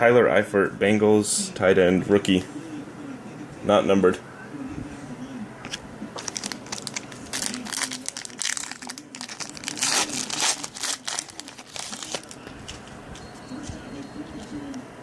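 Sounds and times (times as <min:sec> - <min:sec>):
plastic wrapper crinkling: 0:06.2 - 0:12.8.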